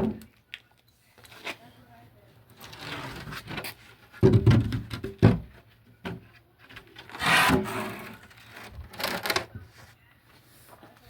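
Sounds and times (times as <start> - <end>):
wood scraping against wood: 6.7 - 9.9.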